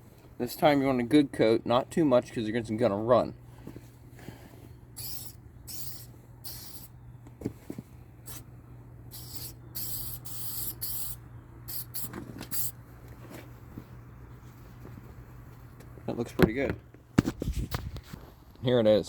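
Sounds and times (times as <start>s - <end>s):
aerosol can spraying: 5.0s - 6.9s, 9.1s - 12.8s.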